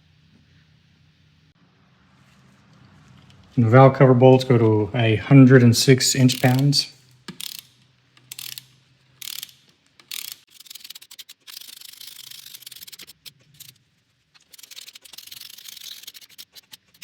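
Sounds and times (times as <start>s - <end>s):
ratchet wrench clicking: 6.2s - 6.7s, 7.3s - 13.8s, 14.5s - 17.0s.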